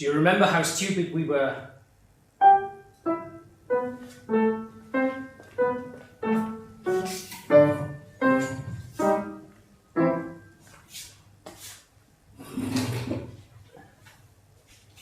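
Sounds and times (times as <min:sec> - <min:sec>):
piano chords: 0:02.3 - 0:10.7.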